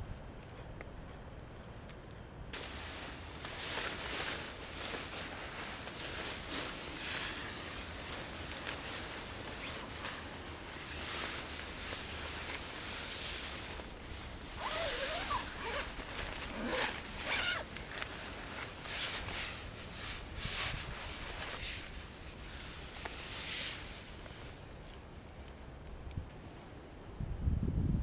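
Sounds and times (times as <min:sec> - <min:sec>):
fabric rustling: 0:02.6 - 0:25.5
zipper being pulled: 0:14.5 - 0:21.5.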